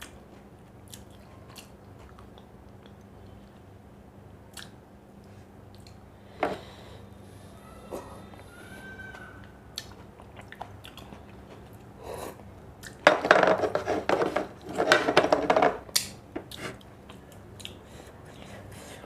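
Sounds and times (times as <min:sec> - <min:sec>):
quiet chewing with clicks: 0:00.0 - 0:03.7, 0:04.5 - 0:06.0, 0:09.7 - 0:13.0, 0:16.5 - 0:18.5.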